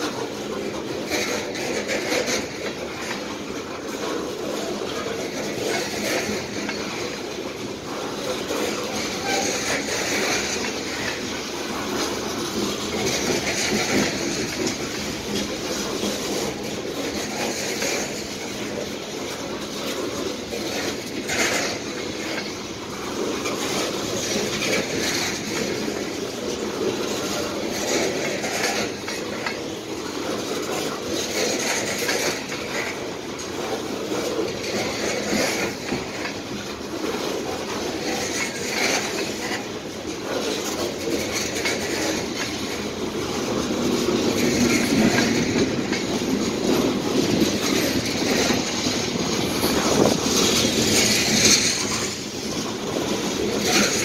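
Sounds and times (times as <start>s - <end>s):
clicks at rail joints: 0.0s - 54.0s
steel wheels rolling on rail: 0.0s - 54.0s.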